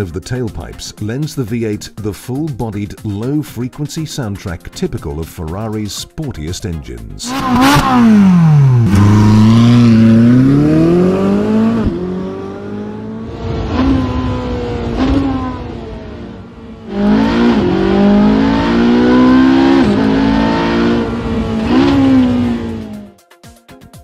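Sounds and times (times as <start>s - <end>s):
car exhaust accelerating with upshifts: 7.2s - 23.1s.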